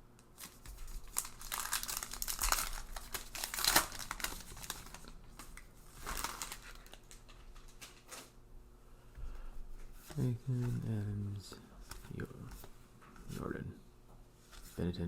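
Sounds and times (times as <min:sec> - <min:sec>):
plastic wrapper crinkling: 0:00.4 - 0:08.4.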